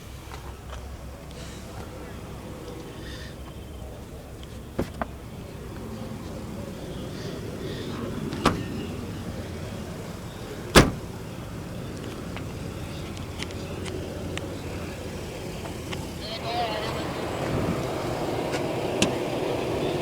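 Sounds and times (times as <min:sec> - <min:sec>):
low background noise: 0:00.0 - 0:20.0
car trunk lid slamming: 0:04.8 - 0:05.2, 0:08.0 - 0:09.6, 0:10.5 - 0:11.4.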